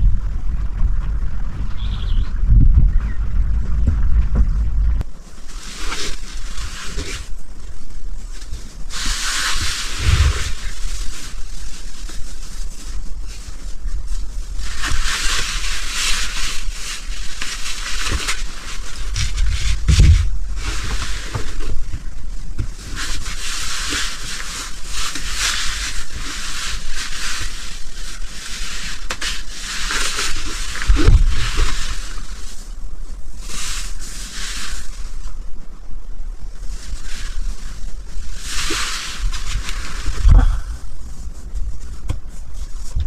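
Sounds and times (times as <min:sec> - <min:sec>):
wind buffeting microphone: 0:00.0 - 0:05.3, 0:09.6 - 0:12.2, 0:18.8 - 0:22.8
gusting wind hiss: 0:00.0 - 0:43.0.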